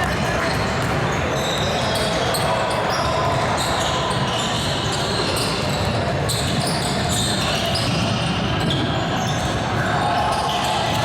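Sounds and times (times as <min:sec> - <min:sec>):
basketball bouncing on court: 0:00.0 - 0:01.2
crowd chatter in hall: 0:00.0 - 0:11.0.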